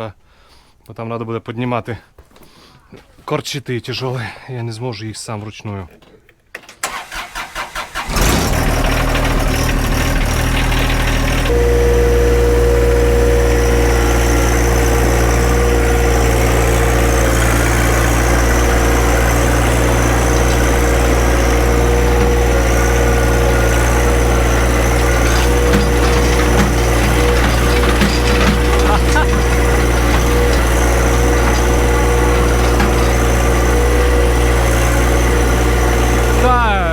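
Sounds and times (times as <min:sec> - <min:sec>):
tractor engine starting and running: 0:06.5 - 0:36.9.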